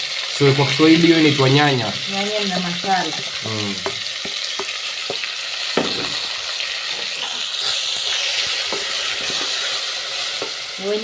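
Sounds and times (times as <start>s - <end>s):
onions sizzling in oil: 0.0s - 11.0s
spoon knocking against pot: 3.8s - 5.2s, 5.8s - 6.2s.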